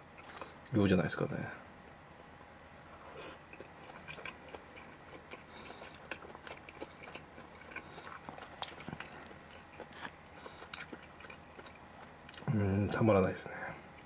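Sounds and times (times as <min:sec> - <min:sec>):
faint chewing: 0:00.1 - 0:00.8, 0:02.4 - 0:14.0.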